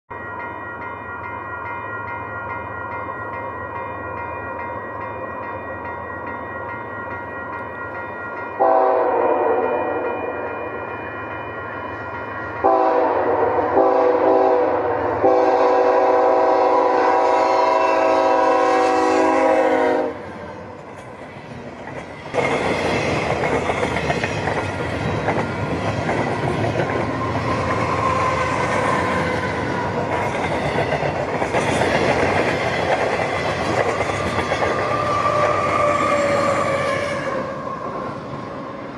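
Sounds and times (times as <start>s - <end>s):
train air horn blowing: 8.6s - 10.3s, 12.6s - 20.3s.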